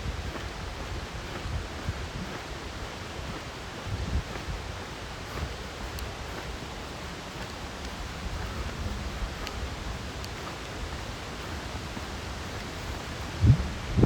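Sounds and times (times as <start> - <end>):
creek rushing: 0.0 - 14.0
wind rumbling on microphone: 0.0 - 14.0
faint clicks: 5.2 - 13.4.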